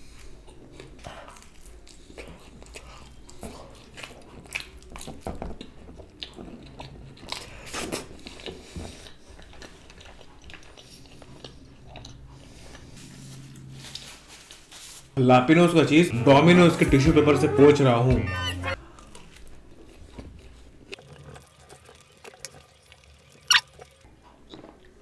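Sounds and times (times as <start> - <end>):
person chewing wetly: 0.1 - 13.7, 18.8 - 25.0.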